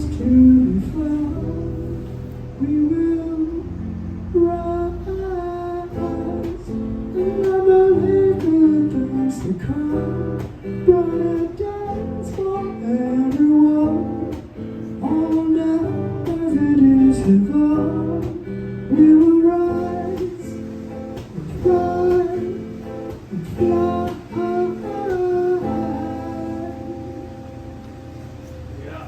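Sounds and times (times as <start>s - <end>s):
person singing wordless melody: 0.0s - 28.8s
acoustic guitar strumming: 0.0s - 29.0s.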